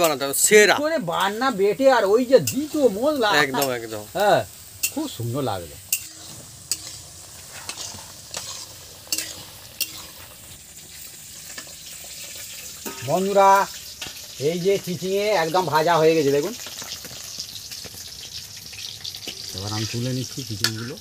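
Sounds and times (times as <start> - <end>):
vegetables frying in oil: 0.0 - 21.0.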